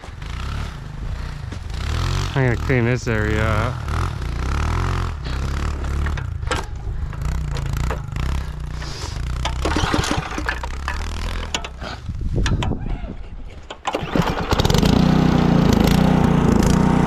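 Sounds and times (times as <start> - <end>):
small engine running: 0.1 - 12.0, 13.9 - 17.0
scraping and clattering: 5.3 - 13.9.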